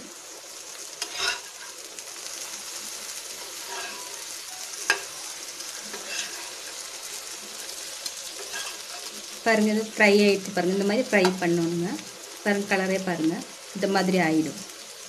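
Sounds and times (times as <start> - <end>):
food sizzling in oil: 0.0 - 15.0
steel spatula scraping pan: 1.0 - 1.8, 3.5 - 5.1, 5.8 - 6.9, 8.3 - 9.2.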